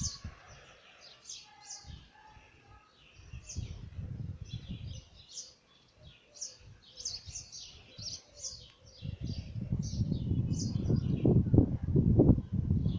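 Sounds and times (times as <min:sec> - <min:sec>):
small birds chirping: 0:00.0 - 0:11.5
low rumbling microphone noise: 0:03.2 - 0:05.2, 0:09.0 - 0:12.9.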